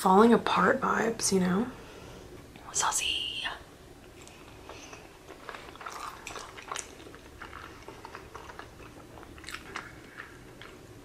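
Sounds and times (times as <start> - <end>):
chewing with mouth clicks: 4.2 - 11.0.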